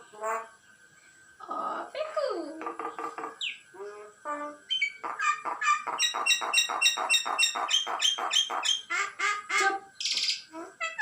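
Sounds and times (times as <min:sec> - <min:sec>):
bird chick harsh chirps: 0:04.7 - 0:11.0.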